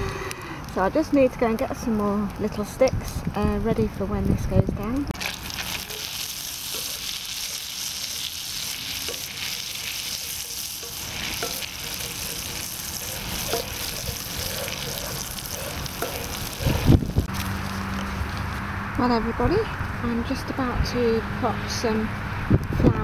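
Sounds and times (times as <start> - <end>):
wooden spoon scraping a pan: 5.2 - 17.3
garlic sizzling in butter: 5.2 - 18.2.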